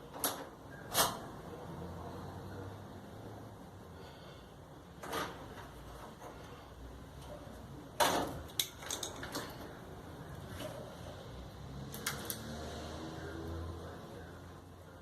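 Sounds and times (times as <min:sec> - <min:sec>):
parts knocking and clicking: 0:00.1 - 0:01.2, 0:07.2 - 0:09.8.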